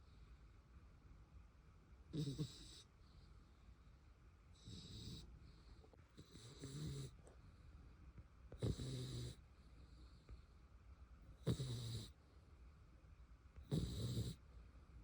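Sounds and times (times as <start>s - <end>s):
dog snoring: 2.1s - 3.0s, 4.6s - 7.3s, 8.5s - 9.5s, 11.4s - 12.2s, 13.6s - 14.4s.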